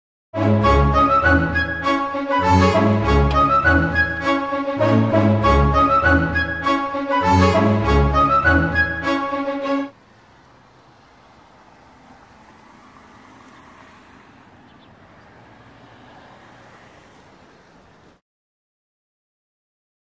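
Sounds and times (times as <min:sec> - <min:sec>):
music: 0:00.4 - 0:09.9
faint vehicle noise: 0:00.4 - 0:18.2.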